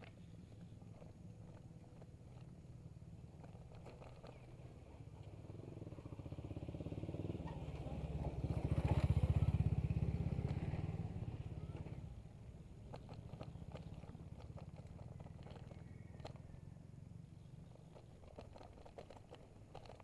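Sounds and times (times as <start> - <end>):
small motorcycle passing by: 4.0 - 17.7.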